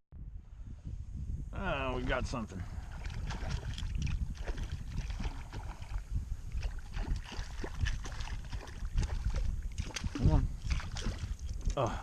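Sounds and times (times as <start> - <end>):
wind rumble on microphone: 0.1 - 12.0
water splashing against a kayak: 2.2 - 12.0.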